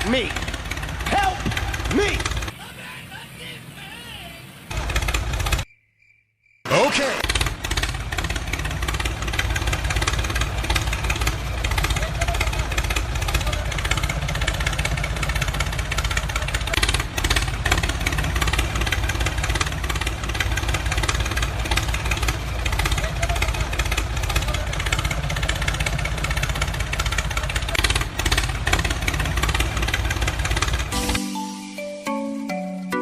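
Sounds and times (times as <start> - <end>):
voices: 0.0 - 4.9, 6.7 - 7.3, 9.3 - 16.8, 20.1 - 30.2
music with pitched notes: 30.9 - 33.0.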